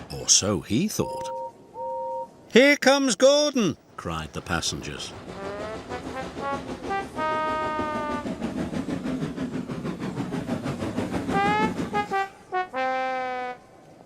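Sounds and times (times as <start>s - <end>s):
steam locomotive chuffing: 3.9s - 13.3s.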